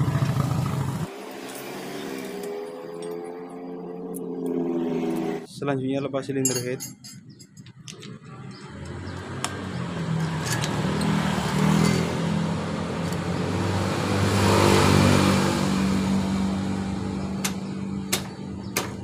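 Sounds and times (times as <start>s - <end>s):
vehicle engine running: 0.0s - 1.1s.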